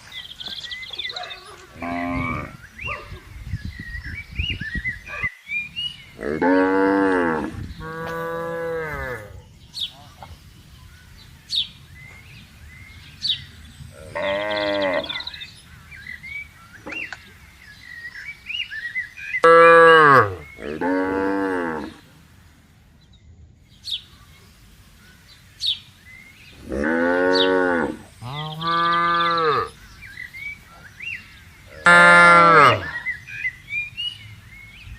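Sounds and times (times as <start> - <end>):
cows mooing: 1.7 - 2.6, 6.2 - 9.4, 14.0 - 15.3, 19.4 - 22.0, 26.6 - 29.7, 31.7 - 33.0.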